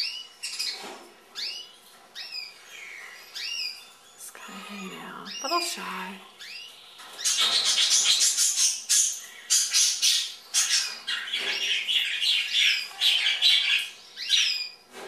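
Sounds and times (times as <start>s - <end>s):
parrots squawking: 4.6s - 14.8s.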